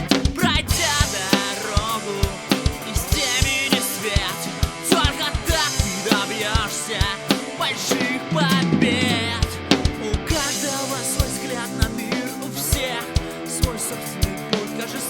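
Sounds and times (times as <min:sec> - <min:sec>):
band backing track: 0:00.0 - 0:15.0
rock drum kit beat: 0:00.0 - 0:15.0.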